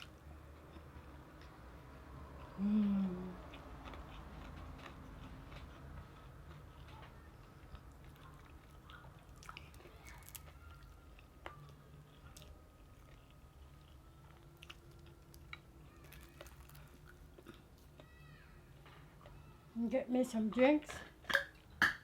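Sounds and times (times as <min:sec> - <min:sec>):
person chewing crispy food: 0:02.4 - 0:18.2.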